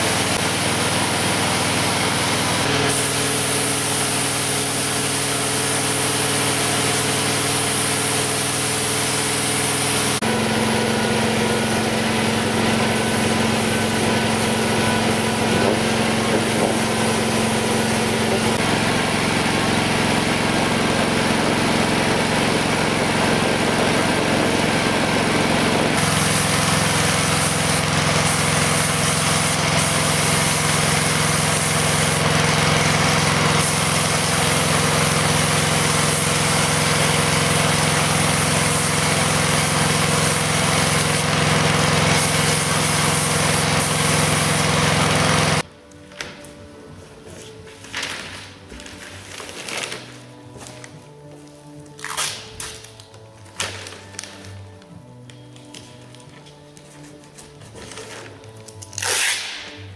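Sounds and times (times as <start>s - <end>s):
compressor motor hum: 0.0s - 45.6s
spray gun air hiss: 2.2s - 10.2s, 10.8s - 18.6s, 26.0s - 45.6s.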